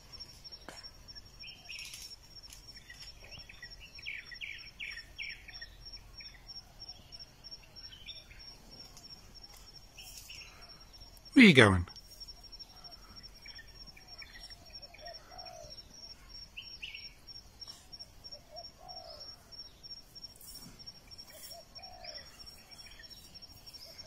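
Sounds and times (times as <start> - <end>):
bird chirps: 0.1 - 11.3, 12.0 - 24.0
birds cooing: 14.1 - 17.1, 18.3 - 19.5, 21.3 - 23.0.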